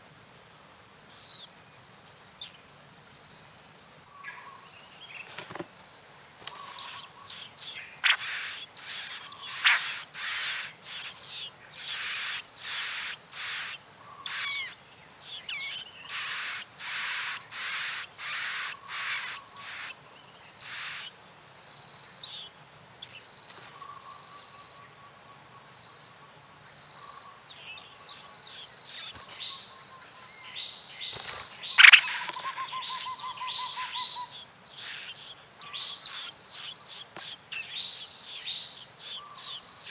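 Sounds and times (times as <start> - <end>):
insects trilling: 0.0 - 39.9
short scratchy calls: 8.0 - 14.7, 16.1 - 19.9.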